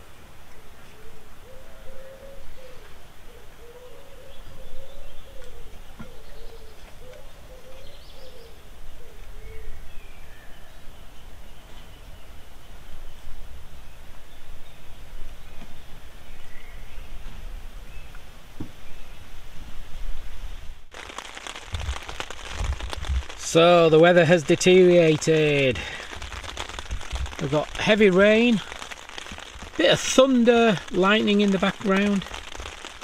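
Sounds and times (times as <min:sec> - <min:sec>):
bird cooing: 0:00.8 - 0:09.8
small birds chirping: 0:01.5 - 0:13.2, 0:21.0 - 0:33.0.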